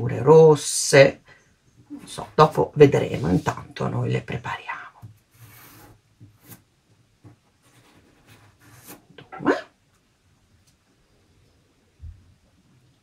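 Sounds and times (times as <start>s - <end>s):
pencil scratching on card: 5.3s - 6.6s, 7.6s - 9.1s
dog barking: 9.4s - 9.8s.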